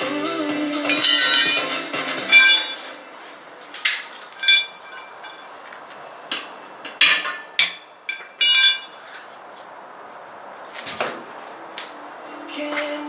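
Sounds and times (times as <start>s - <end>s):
metal tool striking wheel rim: 6.4s - 8.9s.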